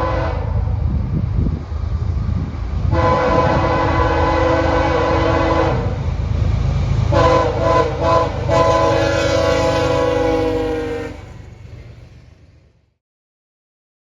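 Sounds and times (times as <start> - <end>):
locomotive air horn blasts: 0.0 - 0.8, 2.9 - 6.0, 7.1 - 11.4
passing train rumbling: 0.0 - 13.0.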